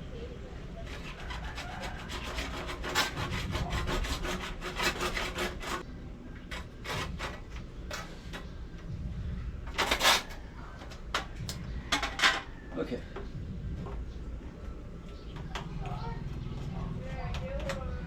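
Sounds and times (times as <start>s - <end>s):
saw cutting plastic pipe: 0.8s - 5.8s.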